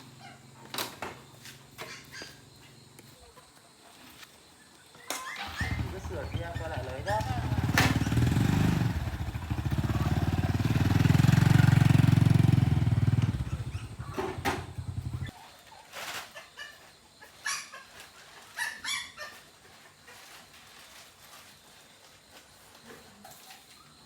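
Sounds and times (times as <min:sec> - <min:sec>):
motorbike engine running: 0:05.4 - 0:15.3
chicken clucking: 0:13.3 - 0:20.4.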